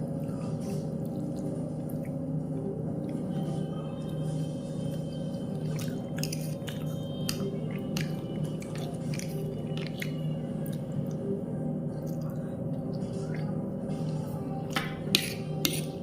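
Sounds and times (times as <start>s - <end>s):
chewing noodles: 5.4s - 11.4s.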